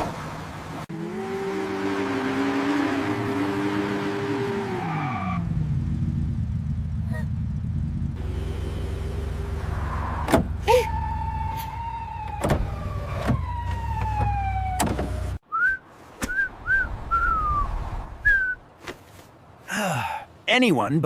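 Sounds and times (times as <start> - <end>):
low vehicle rumble: 5.2 - 15.4
falling whistle tone: 15.5 - 18.6.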